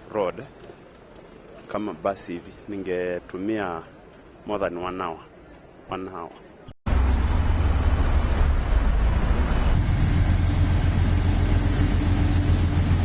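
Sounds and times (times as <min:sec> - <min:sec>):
low hum: 0:06.9 - 0:13.0
vehicle rumble in motion: 0:06.9 - 0:13.0.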